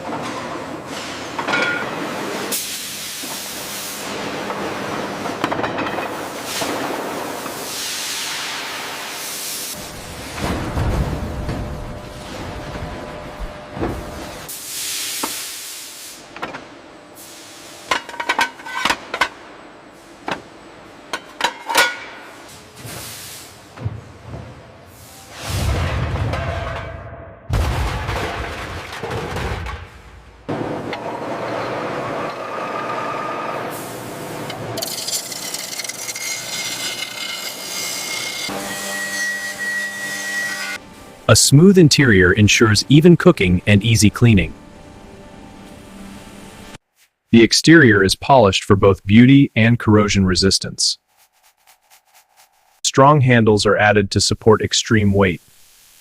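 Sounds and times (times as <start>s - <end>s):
hiss: 14.5s - 16.2s
metal scraping: 34.8s - 40.8s
steady high whine: 49.2s - 55.7s.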